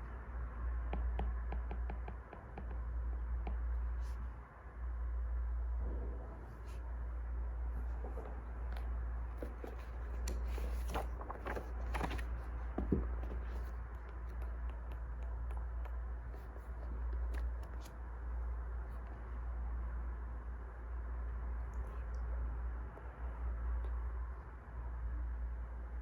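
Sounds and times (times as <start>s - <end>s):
rustling and scraping: 7.8s - 18.0s.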